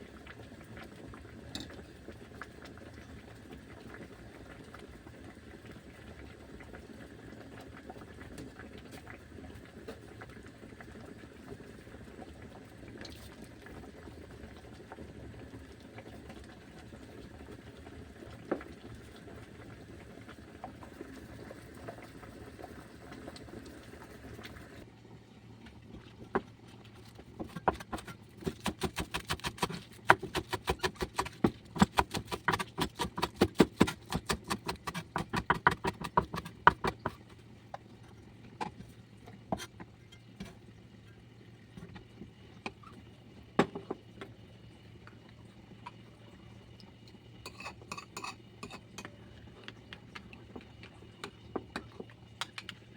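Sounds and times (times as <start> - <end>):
knife chopping on cutting board: 27.6 - 37.0.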